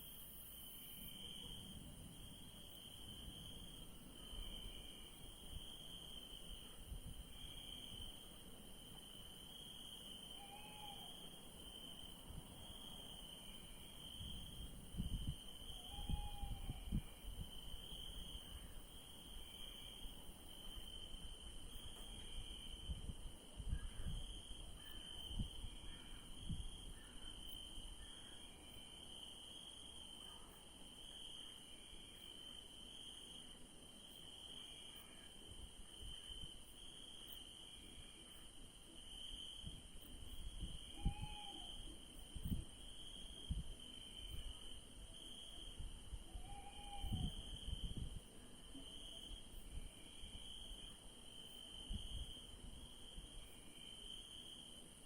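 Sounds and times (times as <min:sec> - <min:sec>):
high-pitched insect trill: 0:00.0 - 0:33.3, 0:33.9 - 0:48.3
crickets chirping: 0:00.0 - 0:55.0
owl hooting: 0:10.4 - 0:11.2, 0:15.8 - 0:16.9, 0:40.9 - 0:41.8, 0:46.3 - 0:47.4.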